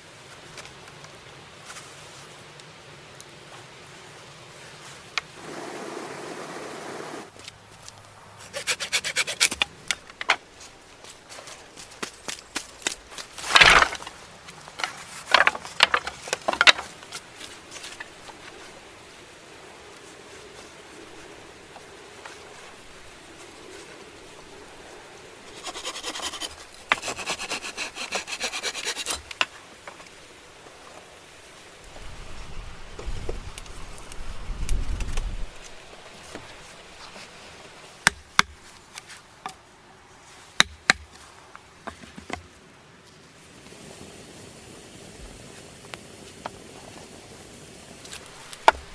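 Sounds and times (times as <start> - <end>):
wood and dry leaves crunching: 7.3 - 19.0, 47.9 - 48.9
rough scraping on wood: 8.4 - 10.7, 25.5 - 30.2.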